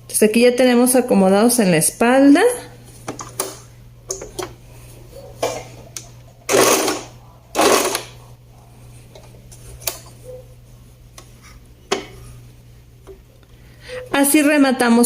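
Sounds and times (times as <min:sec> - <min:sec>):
sewing machine running: 0:06.5 - 0:08.2.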